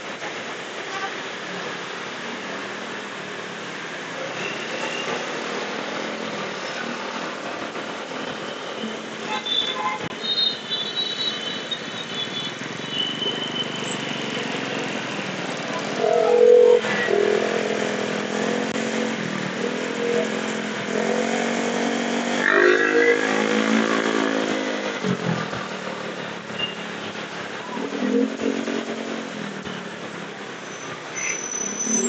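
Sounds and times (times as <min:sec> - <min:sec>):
wind and road noise: 0:11.8 - 0:32.0.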